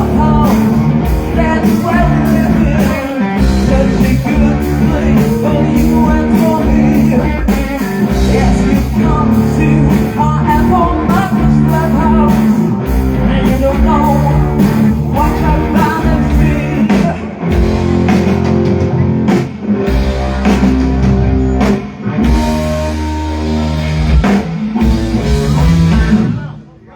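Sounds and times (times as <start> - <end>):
person singing: 0.0 - 17.7
drum kit: 0.0 - 26.6
bass guitar: 0.0 - 26.9
electric guitar: 0.0 - 26.9.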